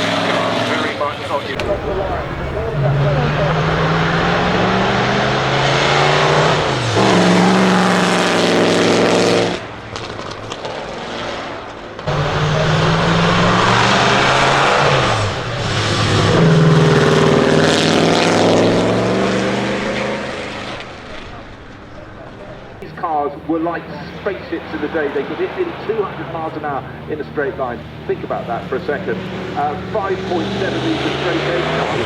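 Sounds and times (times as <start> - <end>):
racing car engine revving: 1.6 - 10.2, 12.1 - 22.8, 29.2 - 32.0.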